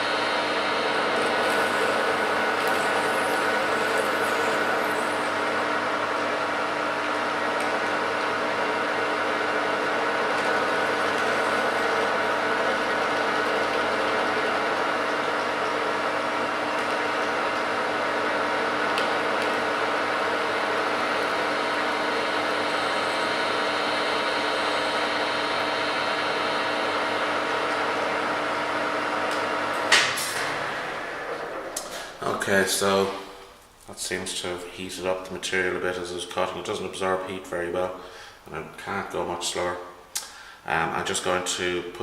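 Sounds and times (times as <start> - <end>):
lathe cutting nylon bar: 0.0 - 32.2.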